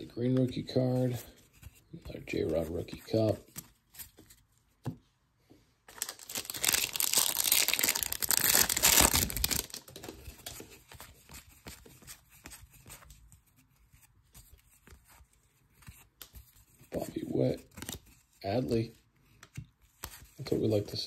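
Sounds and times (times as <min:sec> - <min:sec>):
foil wrapper tearing and crinkling: 0:05.9 - 0:10.0
wrapper rustling: 0:05.9 - 0:10.8.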